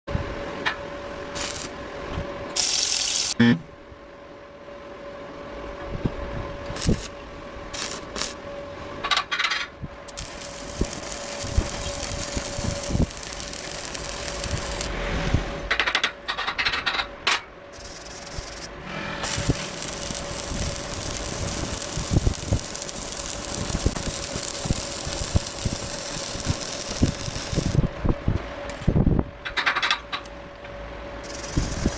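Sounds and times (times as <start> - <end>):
arc welding crackling hiss: 1.3 - 1.8, 2.6 - 3.4, 6.7 - 7.1, 7.7 - 8.4, 10.1 - 14.9, 17.8 - 27.9, 31.2 - 31.9.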